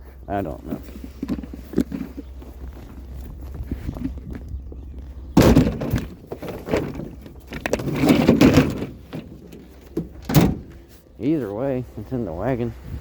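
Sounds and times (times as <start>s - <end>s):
scrap metal crashing into vehicle: 5.4s - 10.7s.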